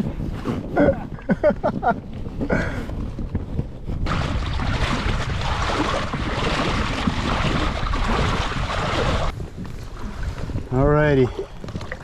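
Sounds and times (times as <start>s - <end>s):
wind on microphone: 0.0s - 12.0s
river water rushing and splashing: 4.1s - 9.3s.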